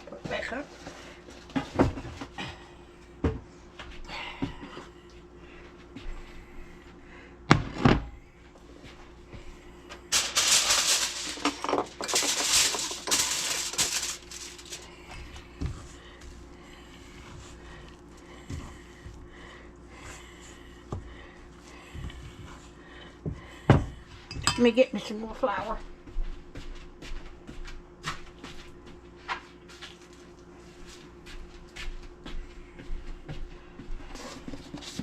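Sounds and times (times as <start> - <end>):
loud crinkling rustle: 10.1 - 14.9.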